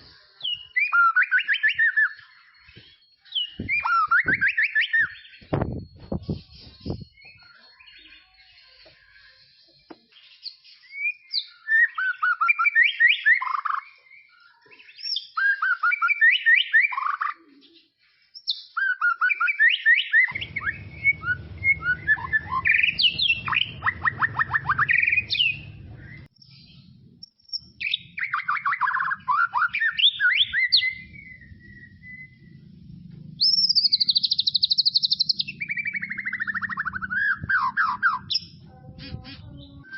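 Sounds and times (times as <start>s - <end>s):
bird singing whistled phrases: 0.4s - 5.7s, 10.4s - 26.3s, 27.5s - 32.5s, 33.4s - 38.6s
low steady hum: 20.3s - 26.3s.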